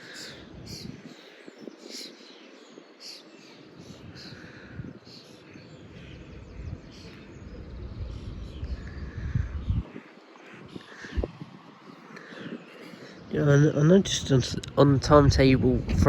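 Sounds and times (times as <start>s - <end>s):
lower bird calls: 0.0s - 13.4s
birds chirping: 0.0s - 16.0s
low rumble: 15.0s - 16.0s.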